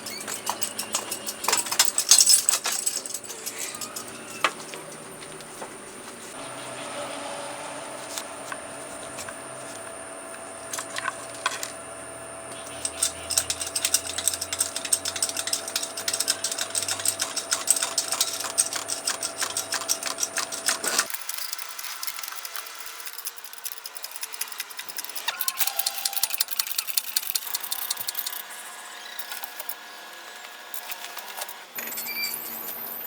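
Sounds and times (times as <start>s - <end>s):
hand tools clicking and clinking: 0.0s - 5.6s, 10.3s - 11.8s, 12.5s - 28.6s.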